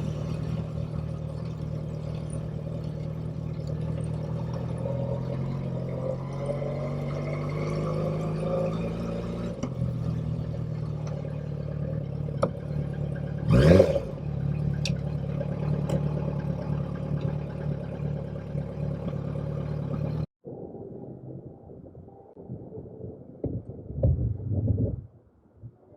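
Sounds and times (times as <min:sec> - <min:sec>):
motorcycle engine running: 0:00.0 - 0:20.3.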